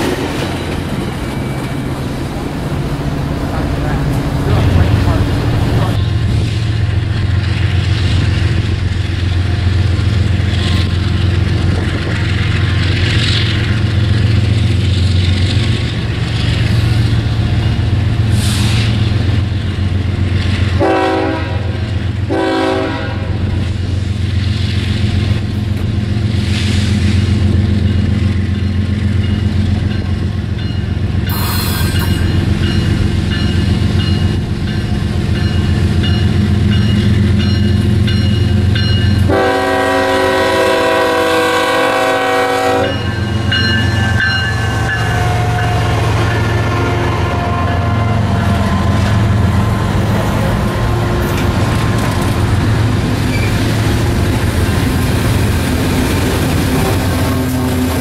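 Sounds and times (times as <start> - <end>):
diesel locomotive engines rumbling: 0.0 - 58.0
train horn blasts: 20.8 - 23.5, 39.2 - 43.2, 44.6 - 49.9.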